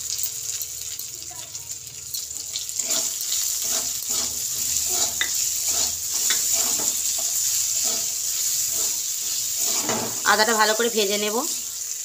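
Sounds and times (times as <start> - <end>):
ginger and chillies sizzling in oil: 0.0 - 12.0
metal spatula scraping a pan: 2.4 - 10.6.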